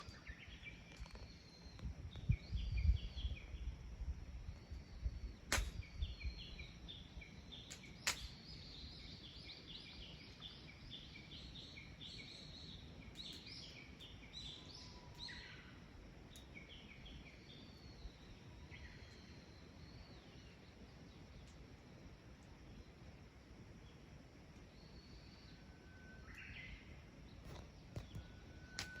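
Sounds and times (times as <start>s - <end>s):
birds singing: 0.0s - 3.8s, 4.4s - 21.6s, 24.6s - 29.0s
sharp cracks: 5.5s - 5.9s, 7.7s - 8.4s.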